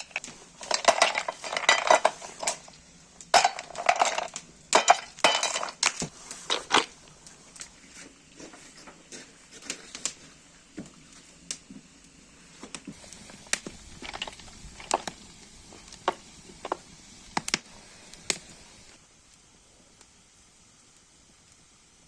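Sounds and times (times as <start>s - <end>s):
cooking gear and wood knocking: 0.0s - 11.0s, 12.6s - 18.9s
faint steady hiss: 0.0s - 22.0s.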